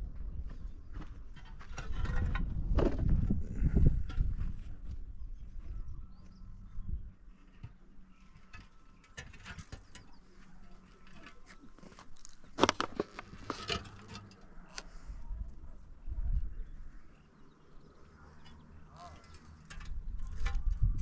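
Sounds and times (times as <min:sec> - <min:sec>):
light knocks and scrapes: 0:07.3 - 0:15.1.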